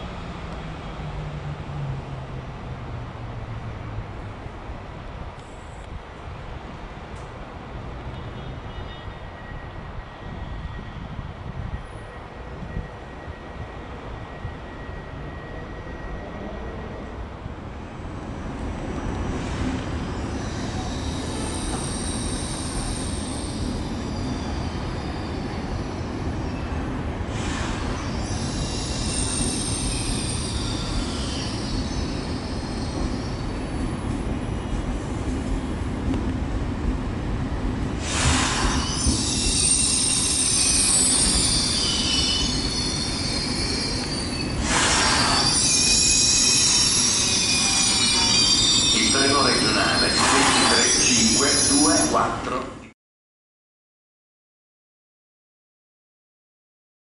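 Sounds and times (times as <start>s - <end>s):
train rumbling into platform: 0.0s - 53.0s
high brake squeal: 8.2s - 11.2s, 11.8s - 17.1s, 18.6s - 34.0s, 38.0s - 52.3s
short hissing rushes: 27.3s - 28.1s, 38.0s - 39.0s, 44.6s - 45.5s.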